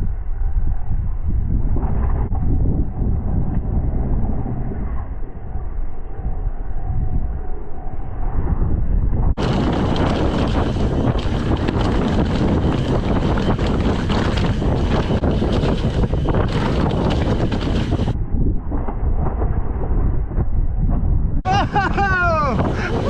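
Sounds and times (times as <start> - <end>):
wind rushing over microphone: 0.0 - 23.0
bike tyres rolling: 9.4 - 18.2
bike rattling over trail: 9.4 - 19.9.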